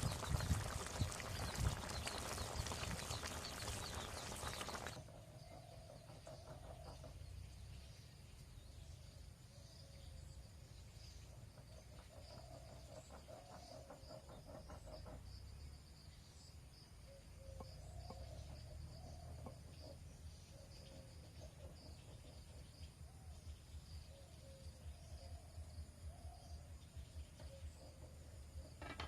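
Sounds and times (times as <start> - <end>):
faint crickets chirping: 0.0 - 29.0.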